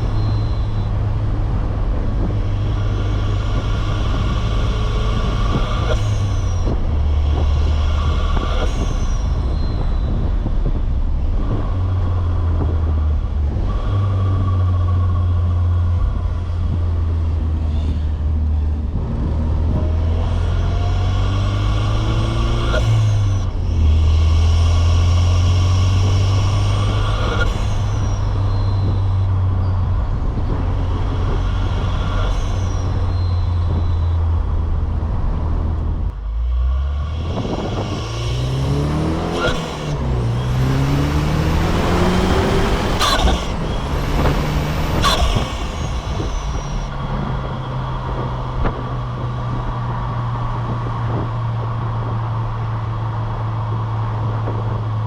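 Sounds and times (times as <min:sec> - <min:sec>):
turbo whistle: 0:00.0 - 0:01.6, 0:02.4 - 0:10.8, 0:20.1 - 0:34.5, 0:36.1 - 0:47.8
car engine droning: 0:00.0 - 0:55.0.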